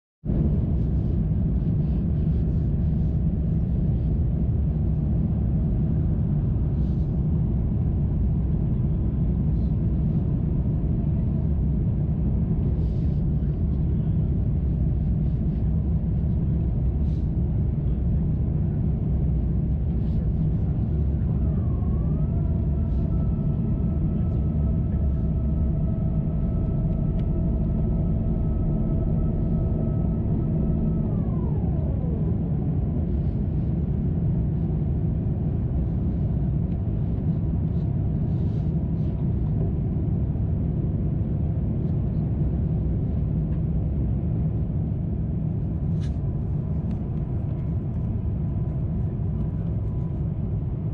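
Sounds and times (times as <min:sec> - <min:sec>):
aircraft cabin rumble: 0:00.2 - 0:50.9
mechanical whine: 0:00.3 - 0:50.9.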